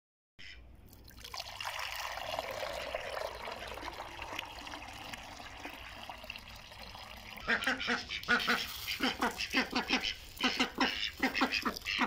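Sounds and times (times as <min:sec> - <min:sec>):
water pouring into stone bowl: 0:00.9 - 0:12.0.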